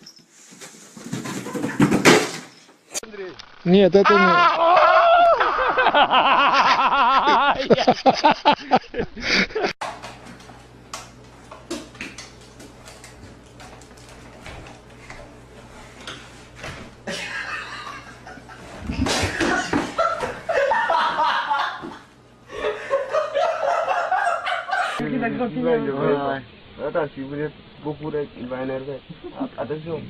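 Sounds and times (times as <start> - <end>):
people laughing: 4.0 - 9.8, 17.1 - 25.4.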